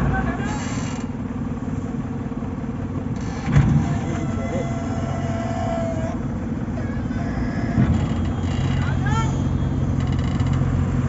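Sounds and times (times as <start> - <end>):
backhoe engine running: 0.0 - 11.0
clunk: 3.2 - 4.4, 7.6 - 9.0.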